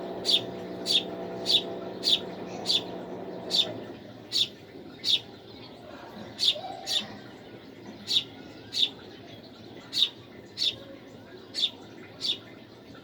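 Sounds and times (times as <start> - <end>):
small bird chirping: 0.0 - 5.3, 6.4 - 7.2, 7.9 - 9.0, 9.8 - 10.8, 11.5 - 12.6.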